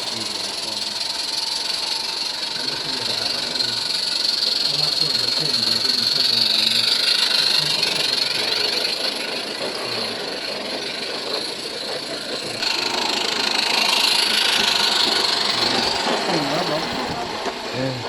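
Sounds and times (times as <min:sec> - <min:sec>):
steam hiss: 0:00.0 - 0:18.0
steam locomotive running: 0:00.0 - 0:18.0.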